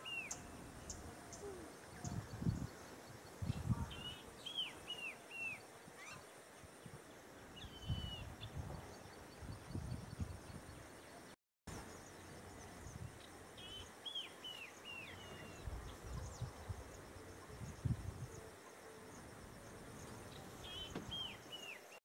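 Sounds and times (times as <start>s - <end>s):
faint high insect tone: 0.0s - 22.0s.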